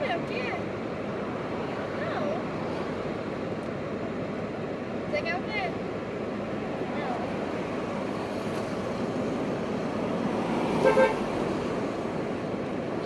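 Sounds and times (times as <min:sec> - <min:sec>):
car horn toots: 0:10.8 - 0:11.2.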